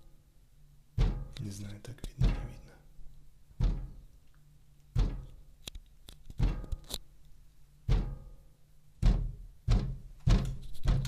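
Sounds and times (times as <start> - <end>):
banging on a window: 0.9 - 1.5, 2.2 - 2.6, 3.6 - 4.1, 4.9 - 5.4, 6.2 - 6.9, 7.8 - 8.4, 9.0 - 11.0.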